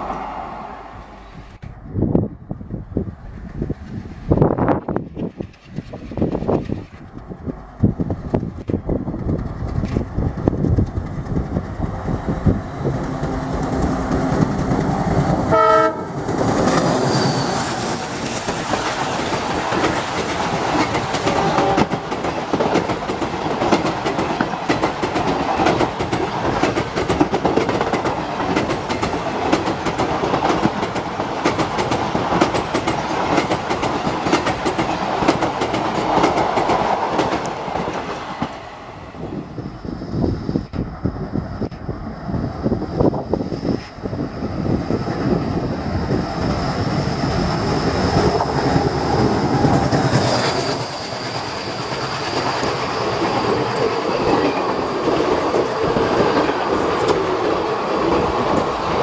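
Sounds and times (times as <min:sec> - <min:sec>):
locomotive engine: 0:09.2 - 0:22.2
train horn blast: 0:15.4 - 0:16.4, 0:21.3 - 0:22.0
train wheels clattering over rail joints: 0:17.8 - 0:38.6.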